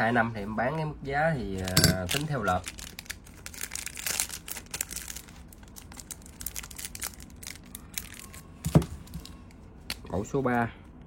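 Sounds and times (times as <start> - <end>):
packaging crinkling and rustling: 1.5 - 9.6.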